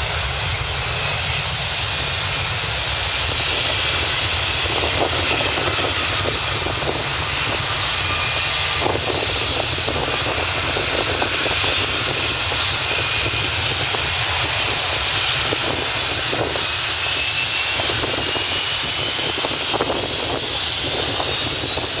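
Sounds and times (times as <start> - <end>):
high turbine whine: 0.0 - 22.0
jet engines roaring at takeoff: 0.0 - 22.0.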